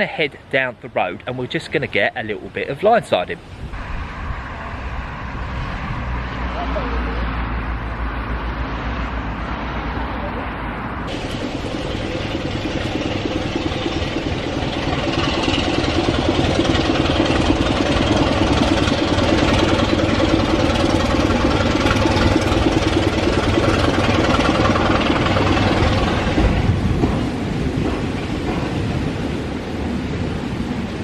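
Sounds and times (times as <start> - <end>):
engine running: 11.0 - 29.4.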